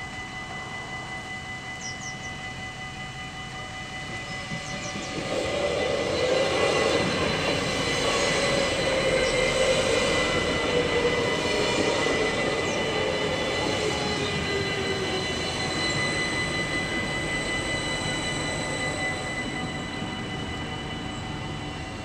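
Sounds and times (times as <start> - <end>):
crossing warning bells ringing: 0.0 - 22.0
wheels rumbling on rails: 4.0 - 15.2.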